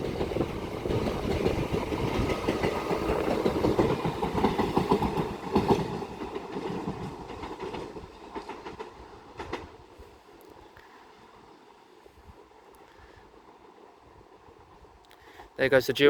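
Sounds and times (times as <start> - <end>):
wheels clicking over rail joints: 0.0 - 10.9
train passing at speed: 0.0 - 16.0.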